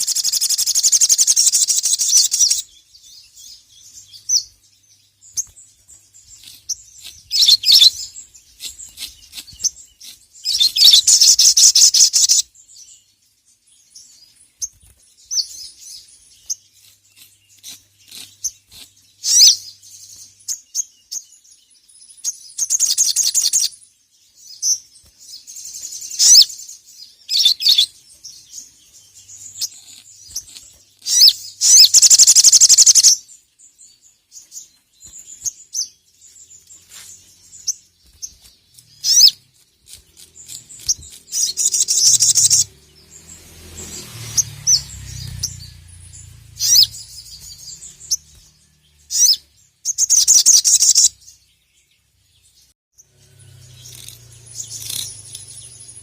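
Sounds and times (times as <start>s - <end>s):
bird chattering trills: 0.0s - 2.7s, 6.2s - 12.5s, 29.4s - 33.2s, 38.8s - 48.3s, 49.0s - 51.2s.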